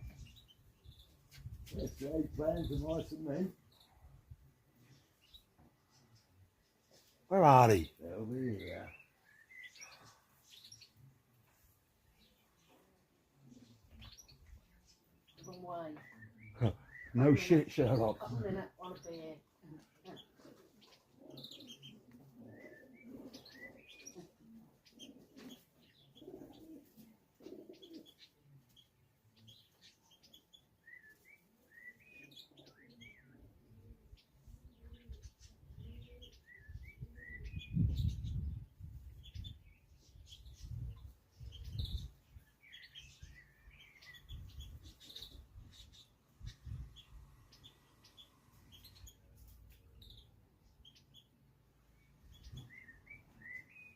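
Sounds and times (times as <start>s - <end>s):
small birds chirping: 0.0s - 53.9s
pigeons cooing: 19.9s - 28.4s, 30.9s - 38.6s, 40.3s - 46.0s.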